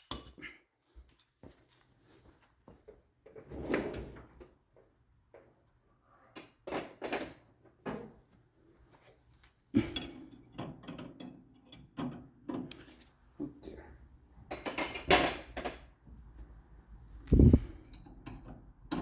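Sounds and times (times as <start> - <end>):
metal tools clanking: 14.5 - 15.8.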